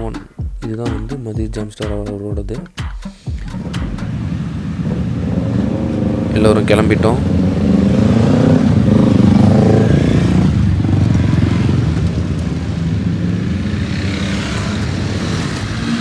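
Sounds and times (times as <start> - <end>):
motorcycle engines running: 3.3 - 16.0.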